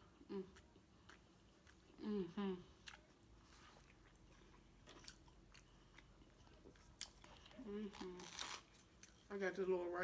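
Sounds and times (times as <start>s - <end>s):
close-up chewing: 0.0s - 9.6s
person humming mmm: 0.2s - 0.6s, 2.0s - 2.7s.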